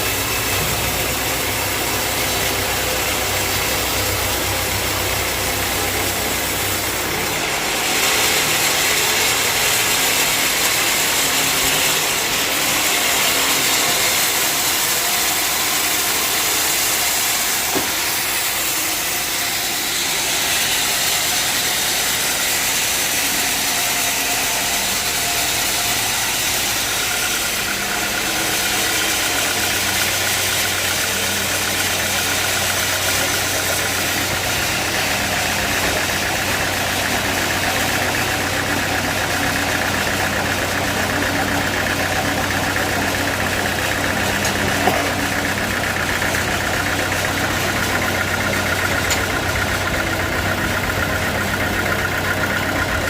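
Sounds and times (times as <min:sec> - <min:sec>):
bandsaw cutting: 0:00.0 - 0:53.0.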